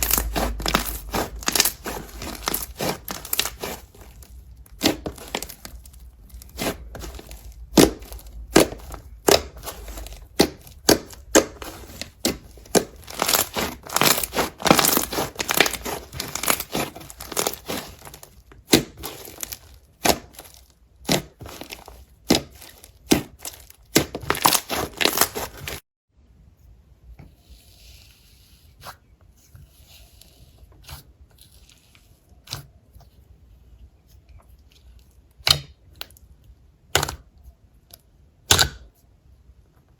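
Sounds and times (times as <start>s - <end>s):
slime crackling and popping: 0.0s - 25.8s.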